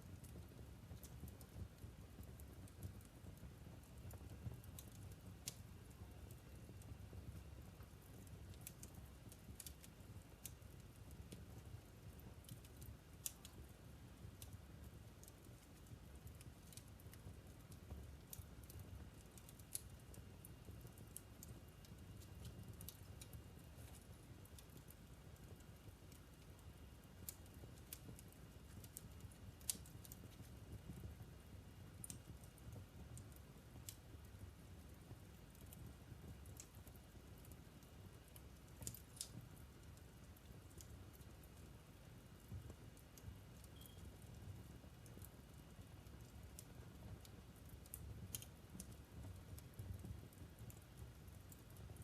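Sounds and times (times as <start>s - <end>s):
wood fire crackling and popping: 0.0s - 52.0s.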